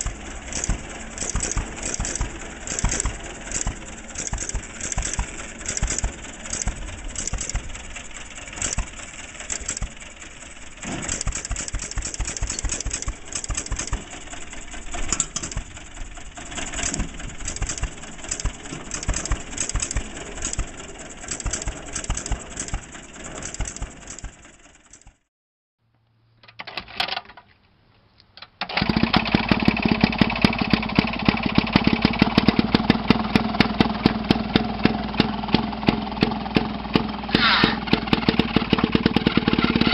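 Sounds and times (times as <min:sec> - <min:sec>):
small engine pulsing unevenly: 0:00.0 - 0:25.2, 0:28.8 - 0:39.9
small engine running steadily: 0:00.0 - 0:25.3, 0:28.8 - 0:39.9.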